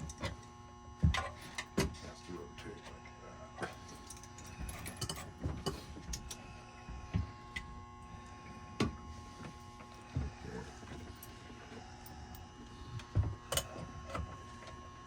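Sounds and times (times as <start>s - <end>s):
steady electrical hum: 0.0s - 15.0s
clinks of hand tools and metal: 3.6s - 6.4s, 13.5s - 14.3s.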